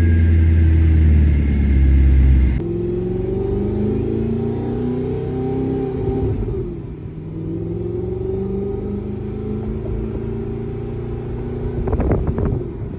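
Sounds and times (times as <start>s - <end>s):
car engine accelerating: 0.0s - 12.9s
exhaust pops: 11.6s - 12.9s.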